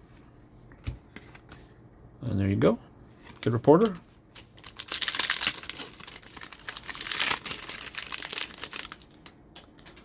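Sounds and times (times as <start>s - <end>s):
plastic wrapper crinkling: 3.3s - 10.0s.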